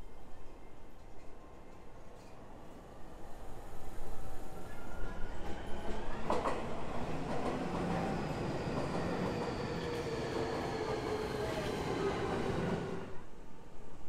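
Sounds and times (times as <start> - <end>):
electric train running by: 3.6 - 13.2.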